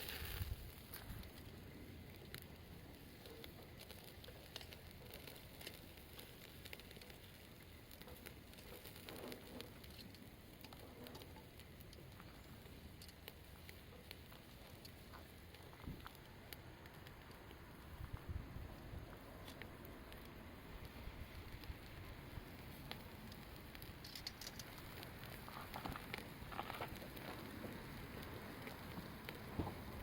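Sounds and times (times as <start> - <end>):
campfire crackling: 0.0 - 30.0.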